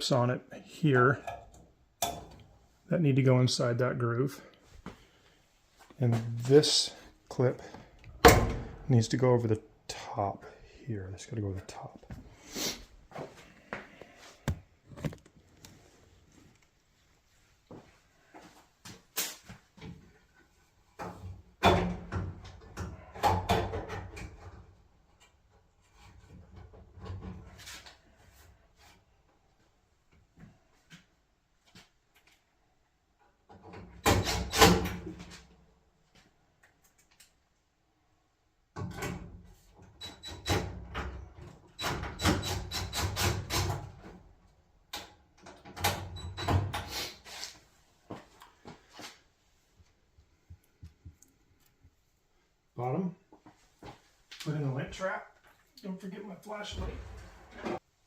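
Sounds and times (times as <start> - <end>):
dryer parts clunking and scraping: 13.1 - 16.0, 21.0 - 29.0, 45.0 - 48.9, 56.6 - 57.8
panels knocking and scraping: 14.0 - 15.6.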